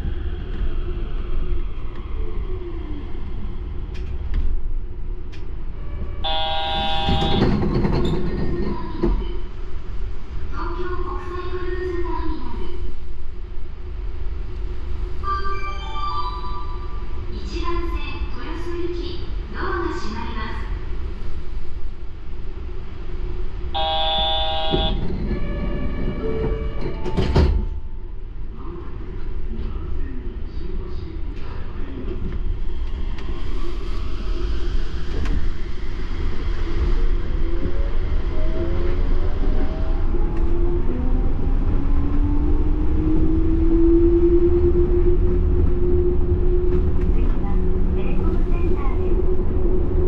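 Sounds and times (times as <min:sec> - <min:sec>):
train running with low rumble: 0:00.0 - 0:50.0.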